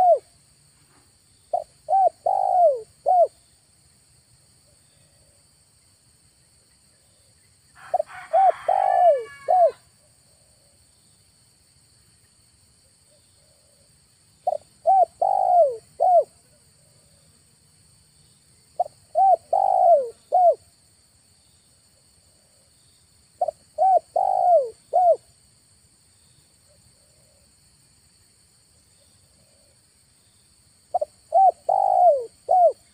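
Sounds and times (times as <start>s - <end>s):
dove cooing: 0.0s - 0.3s, 1.5s - 3.4s, 7.9s - 9.8s, 14.4s - 17.1s, 18.8s - 20.6s, 23.4s - 25.2s, 30.9s - 32.9s.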